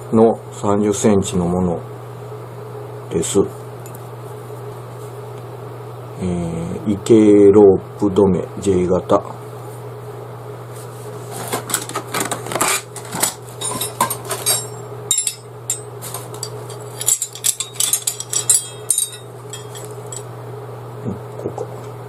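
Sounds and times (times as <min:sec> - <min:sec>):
metal stakes clinking together: 0:13.6 - 0:20.3
low hum: 0:13.6 - 0:20.4.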